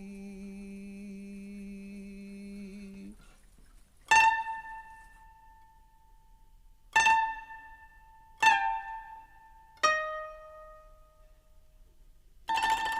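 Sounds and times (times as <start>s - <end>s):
plucked string notes: 4.1s - 12.9s.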